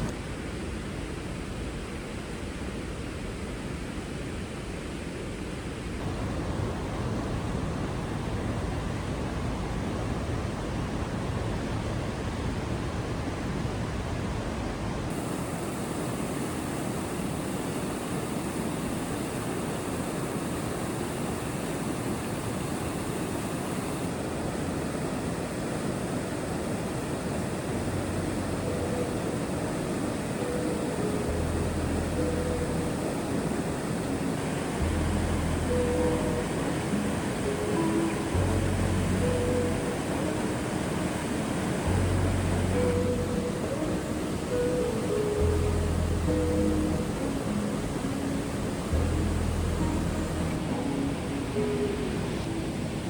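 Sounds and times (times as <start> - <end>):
creek water rushing: 13.5 - 53.0.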